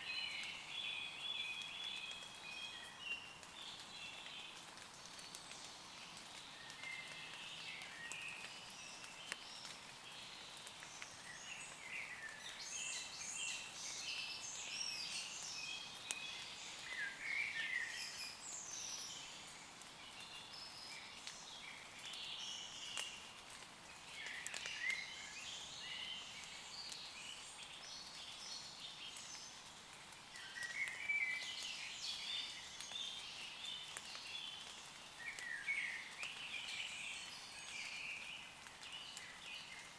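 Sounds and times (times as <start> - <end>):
light rain on leaves: 0.0 - 39.9.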